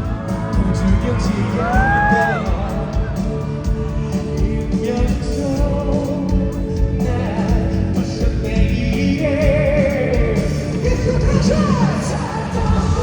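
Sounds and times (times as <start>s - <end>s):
live band playing: 0.0s - 13.0s.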